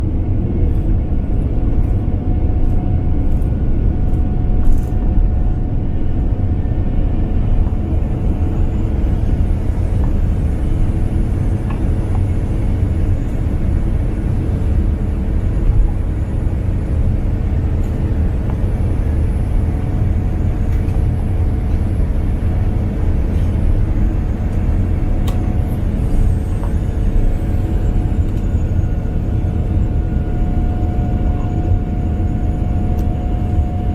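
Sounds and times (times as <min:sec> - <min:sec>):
faint jet engine whine: 0:00.0 - 0:33.9
jet engines rumbling: 0:00.0 - 0:33.9.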